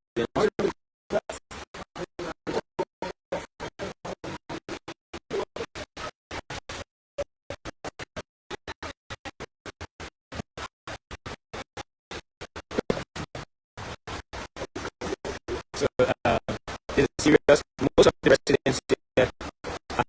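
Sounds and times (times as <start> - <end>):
choppy broken-up transmission audio: 0.2 - 0.7, 15.0 - 20.0.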